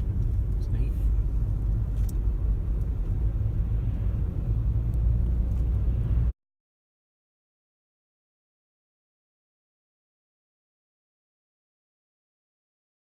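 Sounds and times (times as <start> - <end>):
car engine and tyre rumble: 0.0 - 6.4.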